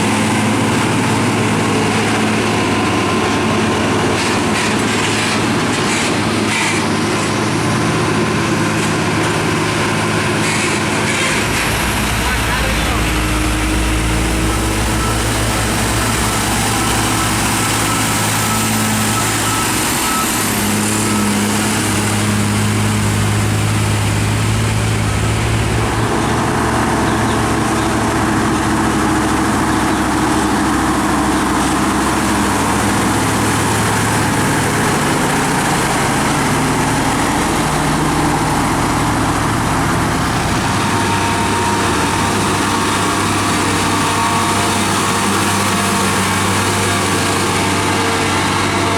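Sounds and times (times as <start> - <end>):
diesel truck engines running: 0.0 - 48.9.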